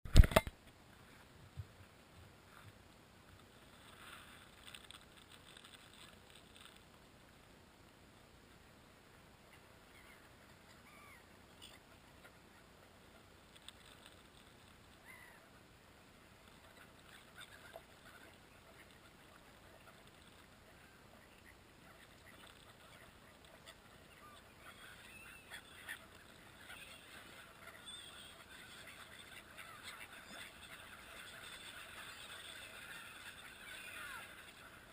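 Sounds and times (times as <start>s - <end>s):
steady low hiss: 0.1s - 34.9s
faint bird calls: 9.4s - 13.2s, 14.9s - 15.7s, 16.4s - 34.9s.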